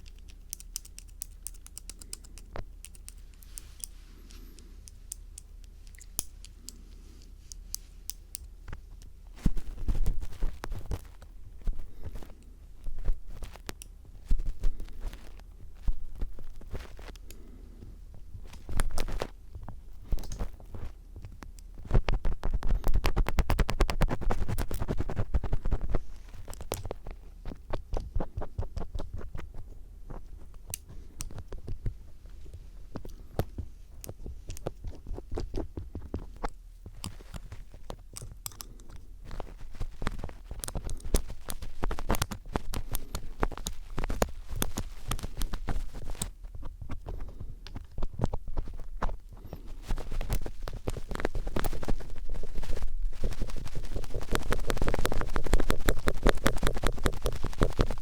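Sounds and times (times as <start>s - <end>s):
screwdriver scratching on microphone: 47.8s - 58.0s.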